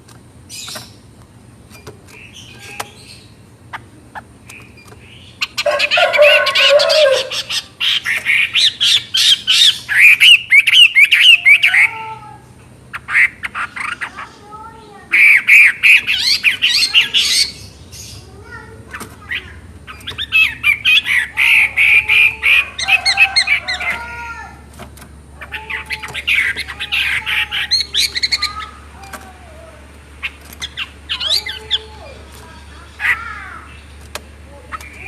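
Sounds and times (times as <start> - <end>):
bird singing varied song: 0.0 - 35.0
sharp clicks: 4.4 - 5.6, 33.8 - 35.0.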